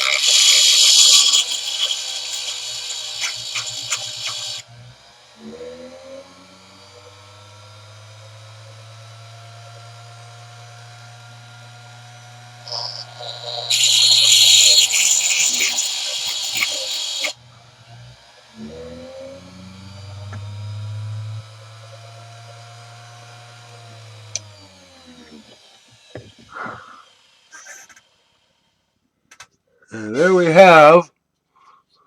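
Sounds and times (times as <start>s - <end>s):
tool bit grinding hiss: 0.0s - 4.7s, 12.2s - 17.4s, 25.0s - 28.4s
grinder humming: 0.0s - 28.4s.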